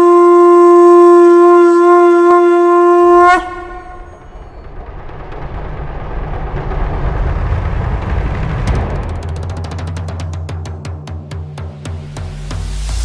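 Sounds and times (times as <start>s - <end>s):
conch shell blown: 0.0s - 4.2s
low rumbling bass: 3.8s - 13.0s.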